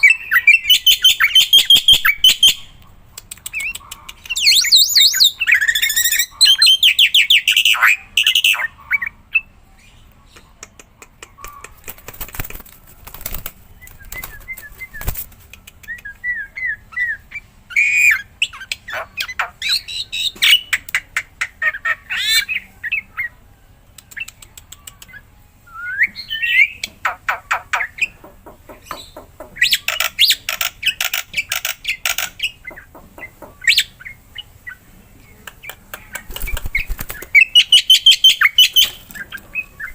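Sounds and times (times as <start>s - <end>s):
bird clicks and chatter: 0.8s - 6.2s, 10.2s - 16.3s, 23.9s - 25.3s, 27.0s - 33.9s, 35.3s - 39.9s.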